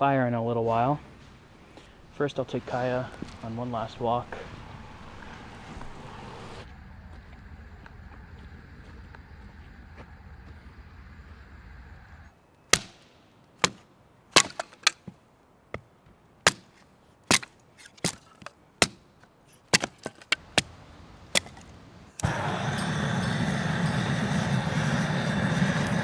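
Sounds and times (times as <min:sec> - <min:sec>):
low rumble: 0:03.1 - 0:12.3
firewood being chopped: 0:12.7 - 0:13.0, 0:13.6 - 0:19.1, 0:19.7 - 0:22.5.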